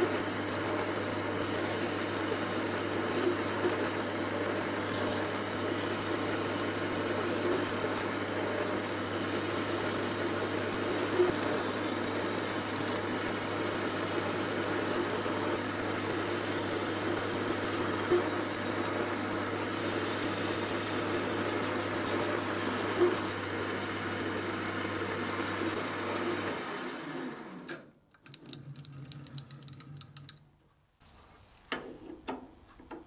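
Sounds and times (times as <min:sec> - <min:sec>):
metal lathe running: 0:00.0 - 0:27.7.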